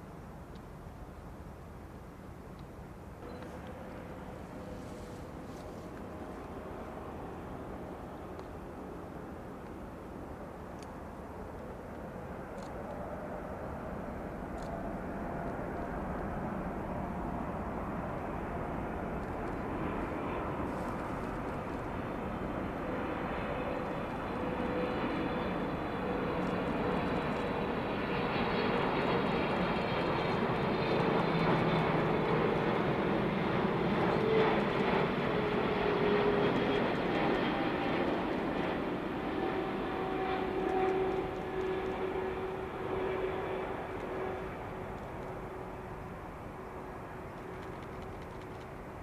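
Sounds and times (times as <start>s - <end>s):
airliner jet engines: 0.0s - 49.0s.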